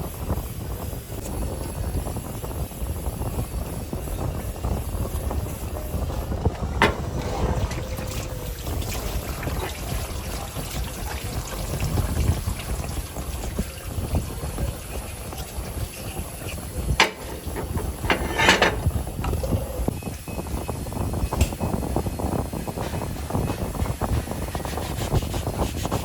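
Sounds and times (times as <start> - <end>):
sharp knocks: 17.0 - 18.9.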